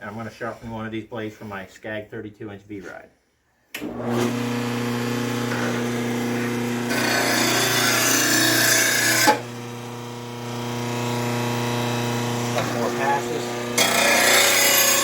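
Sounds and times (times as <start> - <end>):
electric motor humming: 3.8 - 15.0.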